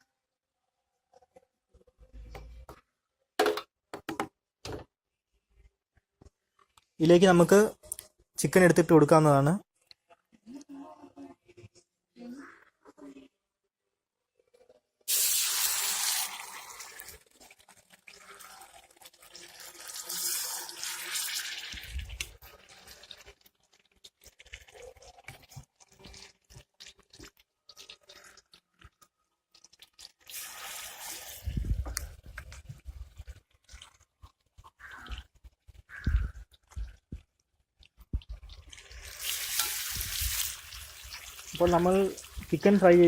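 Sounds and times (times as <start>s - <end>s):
oil sizzling in a pan: 15.1s - 28.6s, 29.6s - 31.9s, 38.2s - 43.0s.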